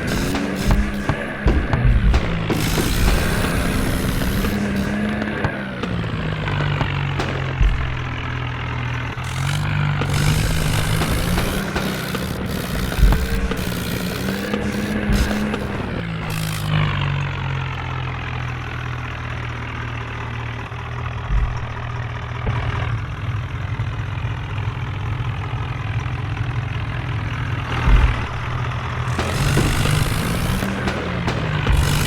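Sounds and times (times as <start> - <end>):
low thumps: 0.0 - 17.0, 21.0 - 22.9, 27.7 - 32.0
tractor diesel engine running: 0.0 - 32.0.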